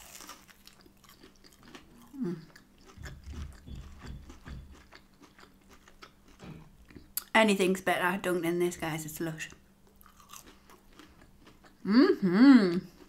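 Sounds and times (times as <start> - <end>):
crunchy chewing: 0.0 - 7.3, 9.5 - 11.8.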